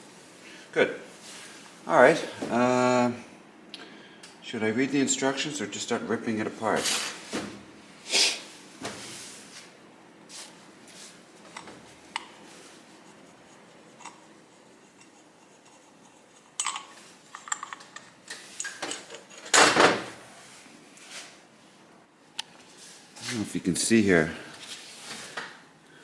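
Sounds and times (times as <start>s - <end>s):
metal engine parts clinking: 16.6s - 19.6s.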